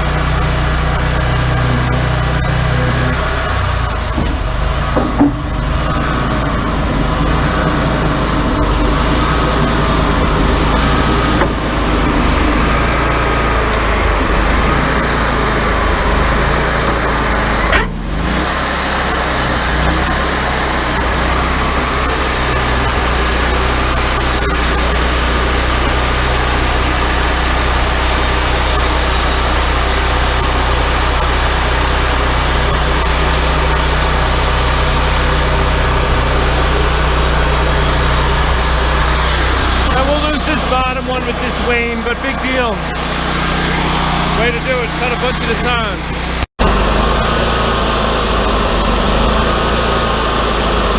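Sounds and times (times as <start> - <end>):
wavering whine: 0.0 - 50.8
band sawmill engine humming: 0.0 - 50.9
band blade sawing wood: 9.4 - 47.7.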